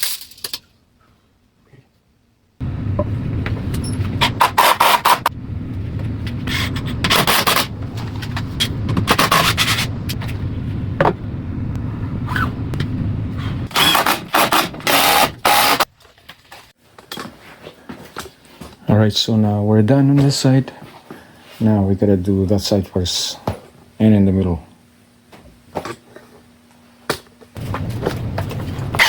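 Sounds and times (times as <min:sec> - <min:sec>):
power saw running: 0:02.6 - 0:15.8
saw blade cutting wood: 0:04.2 - 0:05.3, 0:13.7 - 0:15.9.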